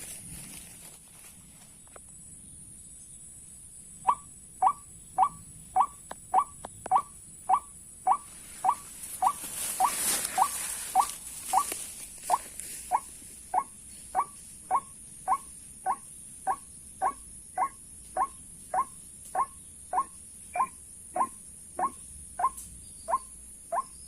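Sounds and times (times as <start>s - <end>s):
waterhen call: 4.1s - 11.7s.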